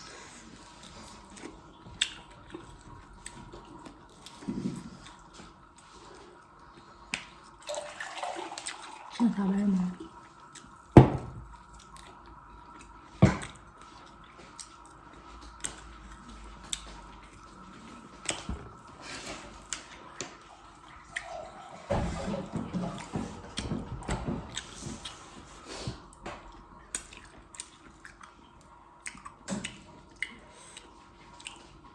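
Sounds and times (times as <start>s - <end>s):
person chewing: 0.1s - 7.5s, 10.2s - 10.9s, 11.5s - 18.5s, 24.5s - 31.9s.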